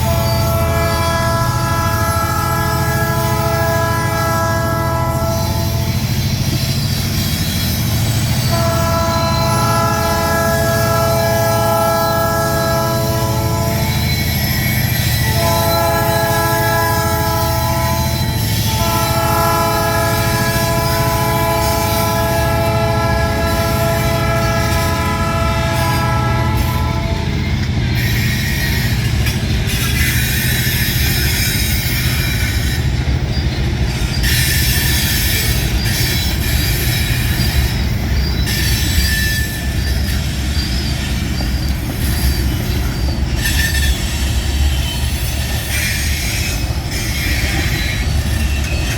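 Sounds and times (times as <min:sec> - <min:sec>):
locomotive horn blasts: 0:00.0 - 0:06.0, 0:08.4 - 0:27.4
freight train rumbling past: 0:00.0 - 0:48.9.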